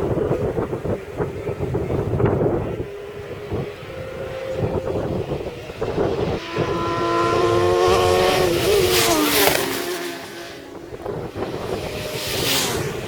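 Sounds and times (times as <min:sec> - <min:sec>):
racing motorcycle passing at speed: 0:00.0 - 0:13.0.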